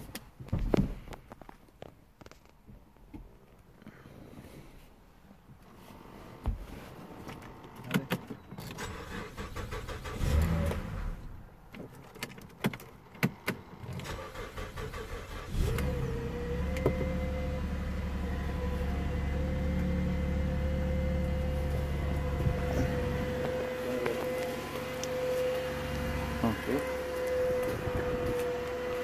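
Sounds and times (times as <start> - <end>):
car engine starting and idling: 7.0 - 29.0.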